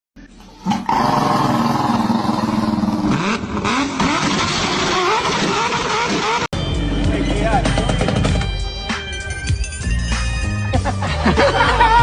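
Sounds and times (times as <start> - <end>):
engine-like drone revving: 0.6 - 7.1.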